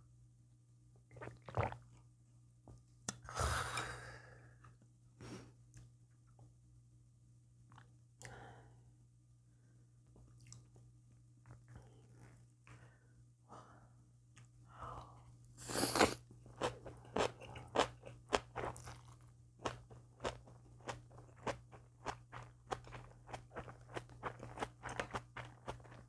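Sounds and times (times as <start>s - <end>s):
chewing crunchy food: 15.7s - 26.0s.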